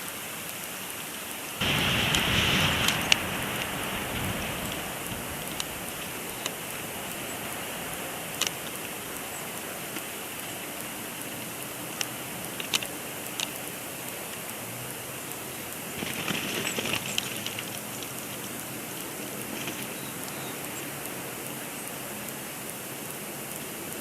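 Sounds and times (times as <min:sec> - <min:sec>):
light ticks: 0:00.0 - 0:24.0
snowstorm hiss: 0:00.0 - 0:24.0
rustling: 0:16.0 - 0:18.6.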